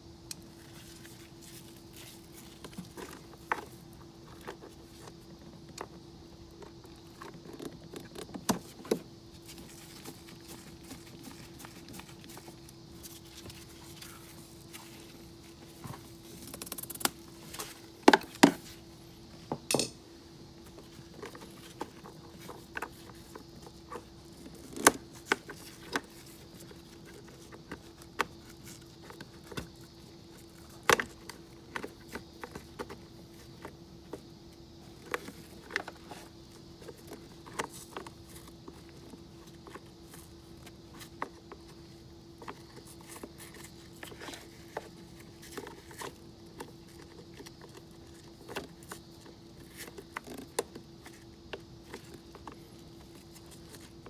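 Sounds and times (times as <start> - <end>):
faint steady hum: 0.0 - 54.0
metallic clicks of tools: 19.7 - 20.0.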